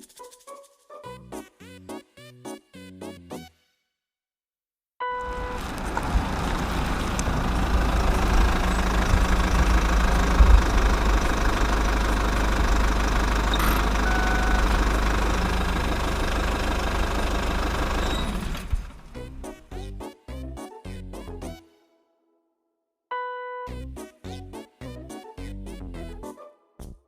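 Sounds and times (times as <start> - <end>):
heavy machine engine rumbling: 5.2 - 19.6.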